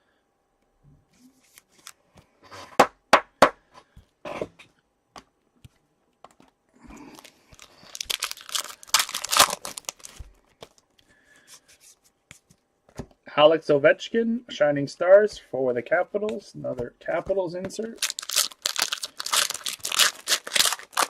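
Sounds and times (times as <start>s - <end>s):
wrapper crinkling and tearing: 7.0s - 10.8s, 17.8s - 21.0s.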